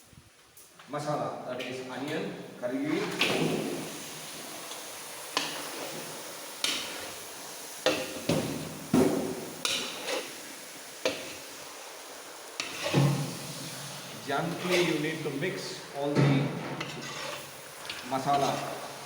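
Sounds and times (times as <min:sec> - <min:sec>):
food frying hiss: 0:01.8 - 0:19.0
metal ladle clanking and scraping: 0:16.7 - 0:17.5.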